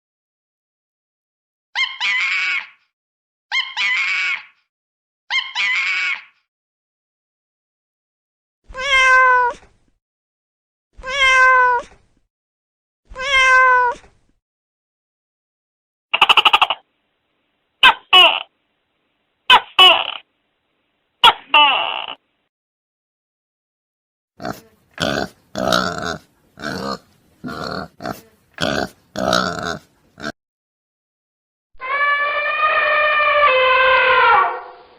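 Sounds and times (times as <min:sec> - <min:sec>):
cat meowing: 0:08.7 - 0:09.7, 0:11.0 - 0:12.0, 0:13.1 - 0:14.0
animal grunting calls: 0:24.4 - 0:30.3.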